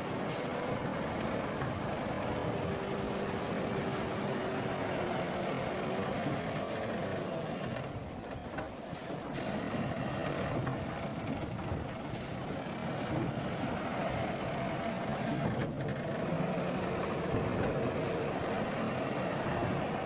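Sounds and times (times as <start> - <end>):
heavy diesel machinery droning: 0.0 - 20.0.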